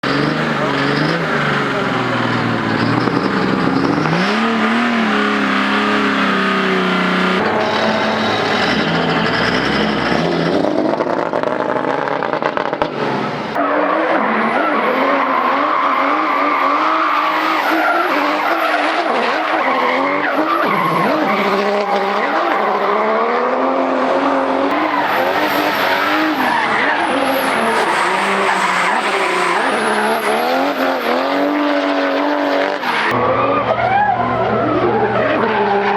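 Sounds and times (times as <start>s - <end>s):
tyres squealing: 0.0s - 10.6s, 24.3s - 32.0s, 32.8s - 35.9s
diesel engine revving: 0.0s - 35.9s.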